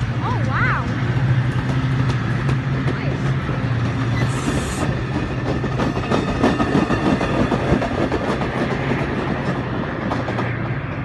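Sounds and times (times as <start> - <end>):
wheels clicking over rail joints: 0.0 - 11.0.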